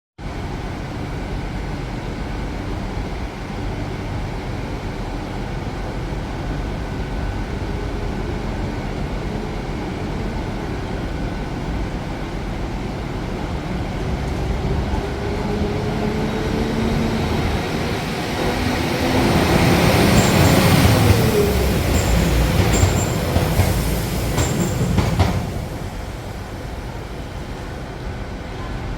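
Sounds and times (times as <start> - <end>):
train engine rumble: 0.2 - 28.9
rising engine whine: 13.6 - 24.0.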